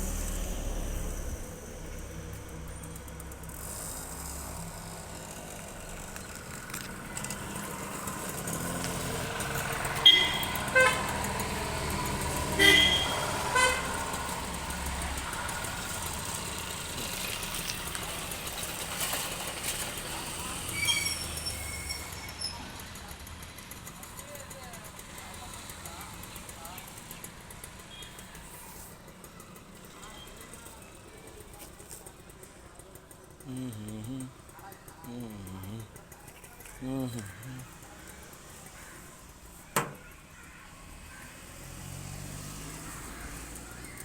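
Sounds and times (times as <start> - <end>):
background traffic noise: 0.0 - 44.0
short horn toots: 10.0 - 11.1, 12.6 - 14.0.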